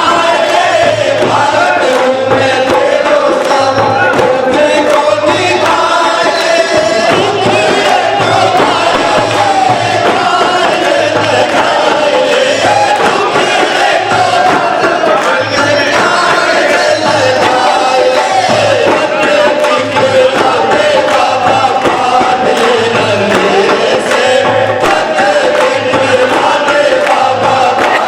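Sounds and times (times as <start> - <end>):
group of voices singing: 0.0 - 28.0
low drum beat: 6.8 - 15.2, 17.1 - 28.0.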